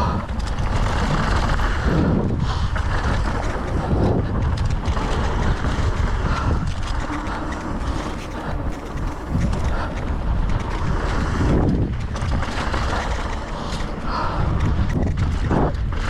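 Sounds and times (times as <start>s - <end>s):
bike rattling on trail: 0.0s - 16.0s
wind buffeting microphone: 0.0s - 16.0s.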